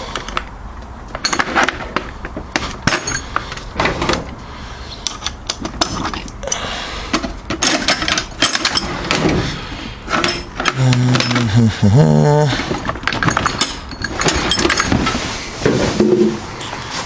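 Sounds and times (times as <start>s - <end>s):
metal tools clinking: 1.1s - 1.8s, 2.8s - 3.7s, 5.0s - 9.3s, 10.1s - 11.7s, 12.6s - 15.4s.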